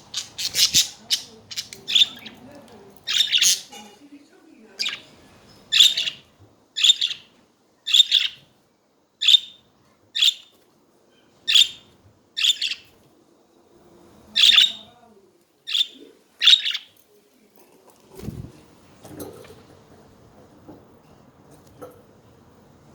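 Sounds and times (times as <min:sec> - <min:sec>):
budgerigars chirping: 0:00.0 - 0:02.4, 0:03.1 - 0:03.8, 0:04.8 - 0:05.1, 0:05.7 - 0:07.3, 0:07.9 - 0:08.4, 0:09.2 - 0:09.6, 0:10.2 - 0:10.5, 0:11.5 - 0:12.9, 0:14.4 - 0:14.9, 0:15.7 - 0:16.9.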